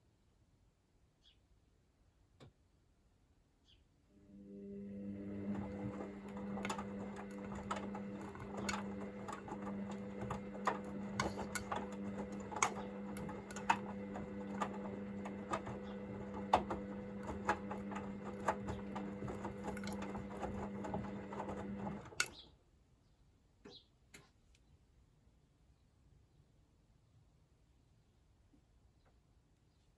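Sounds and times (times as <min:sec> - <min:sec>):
washing machine motor hum: 0:04.1 - 0:22.5
washing machine click: 0:05.2 - 0:22.4
clicks and knocks of tumbling load: 0:05.3 - 0:22.4.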